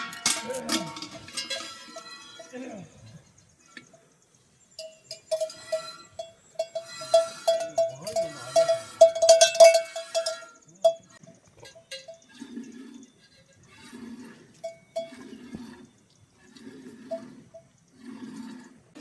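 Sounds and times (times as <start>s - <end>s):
metal livestock bell clanking: 0.0s - 3.2s, 4.7s - 12.4s, 14.6s - 15.8s.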